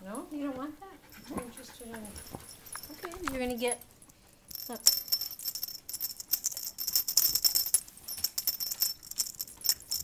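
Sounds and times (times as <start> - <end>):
jingle bell ringing: 2.2 - 10.0.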